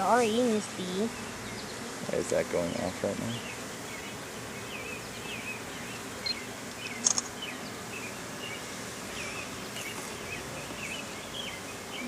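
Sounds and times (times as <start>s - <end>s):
honeybees buzzing: 0.0s - 12.0s
small birds chirping: 0.0s - 12.0s
sharp click: 7.0s - 7.4s.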